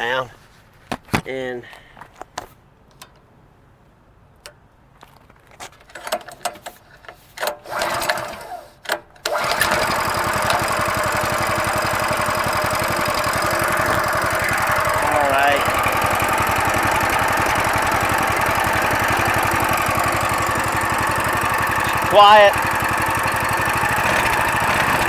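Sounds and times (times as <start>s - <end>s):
clicks and handling noises: 0.8s - 3.3s, 4.4s - 9.4s
small engine starting and running: 7.5s - 25.0s.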